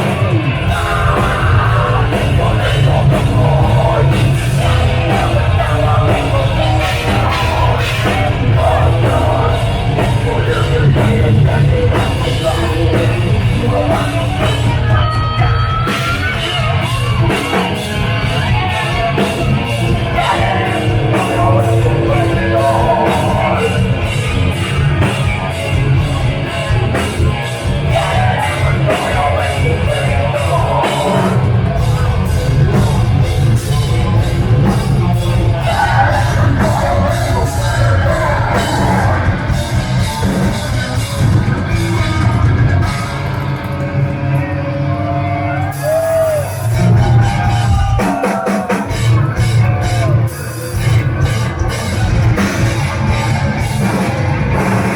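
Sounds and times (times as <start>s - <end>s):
heavy metal band playing live: 0.0s - 54.9s
screamed vocals: 35.5s - 40.7s, 44.9s - 50.5s.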